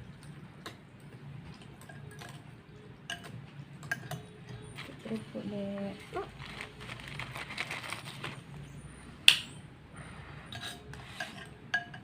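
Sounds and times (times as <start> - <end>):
metal utensil clinking on bowl: 1.8 - 2.5, 3.1 - 5.2, 10.5 - 12.0
crunchy chewing of crackers: 6.2 - 8.6.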